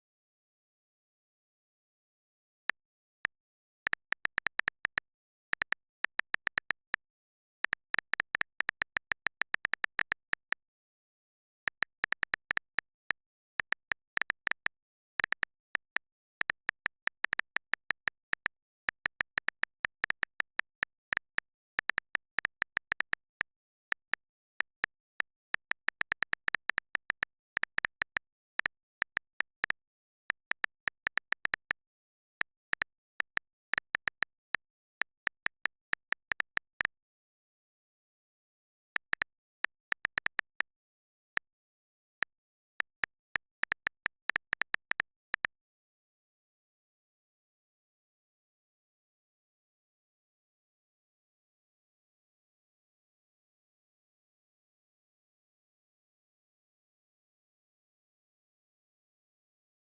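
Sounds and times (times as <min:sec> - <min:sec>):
irregular sharp clicks: 0:02.7 - 0:37.0, 0:39.0 - 0:45.5.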